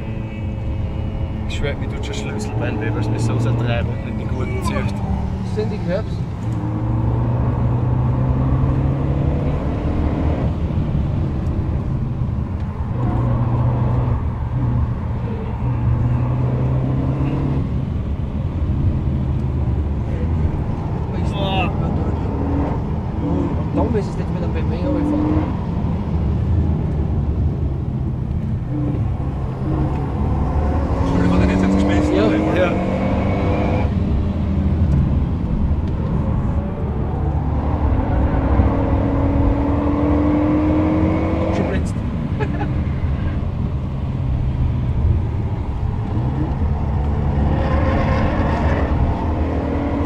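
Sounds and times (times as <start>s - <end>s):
car engine running: 0.0s - 7.8s
road and tyre rumble: 0.0s - 50.0s.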